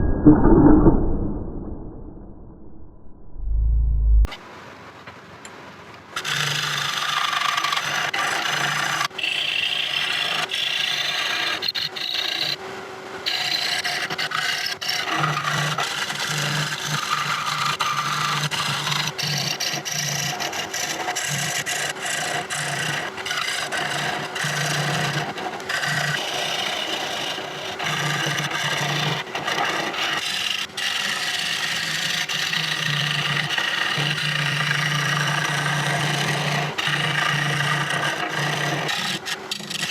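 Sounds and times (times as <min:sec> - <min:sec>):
low motor hum: 0:00.0 - 0:04.4
lathe tool scraping wood: 0:06.2 - 0:12.6, 0:13.3 - 0:39.9.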